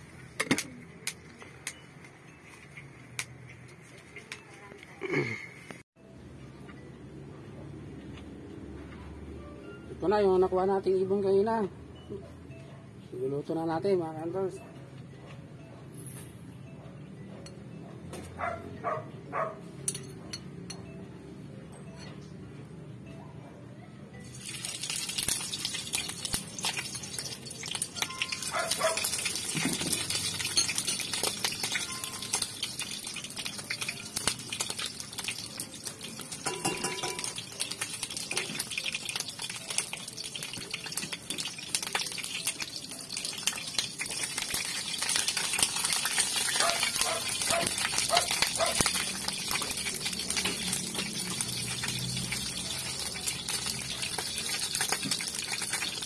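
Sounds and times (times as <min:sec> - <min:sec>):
meat sizzling in a wok: 0:24.2 - 0:56.0.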